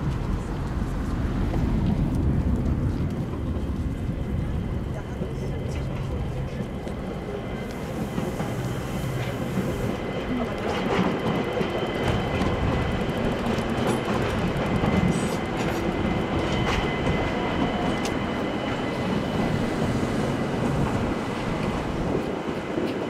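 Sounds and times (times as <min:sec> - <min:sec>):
train running with high whine: 0:00.0 - 0:23.0
wheels clicking over rail joints: 0:06.0 - 0:19.6.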